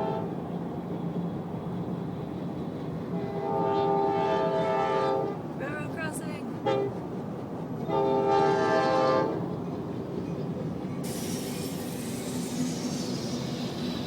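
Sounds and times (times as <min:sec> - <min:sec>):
train horn blast: 0:00.0 - 0:00.4, 0:03.1 - 0:05.5, 0:06.6 - 0:07.0, 0:07.8 - 0:09.5
rushing hiss: 0:11.0 - 0:14.0.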